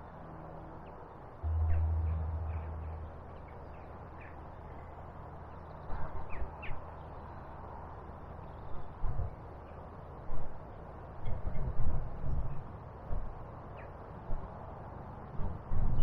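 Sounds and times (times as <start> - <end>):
low steady hum: 1.4 - 5.0.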